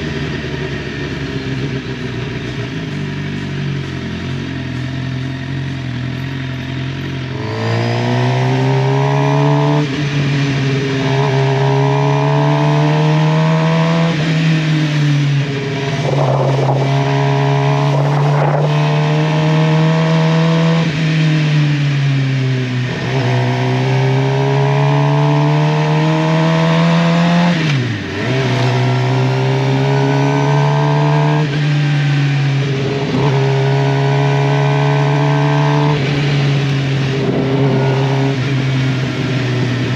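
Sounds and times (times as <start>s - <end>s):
motorcycle engine accelerating: 0.0s - 39.9s
wind noise: 12.9s - 21.2s, 35.6s - 39.9s.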